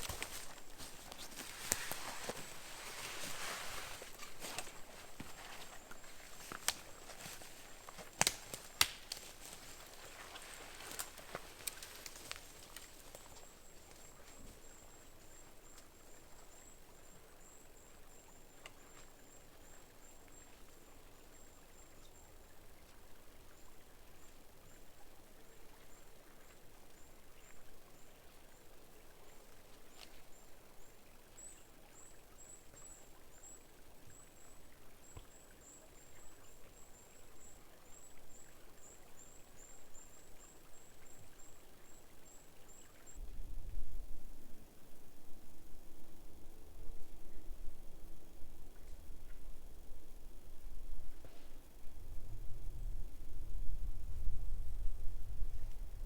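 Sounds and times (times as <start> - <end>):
faint snaps: 4.0 - 14.4.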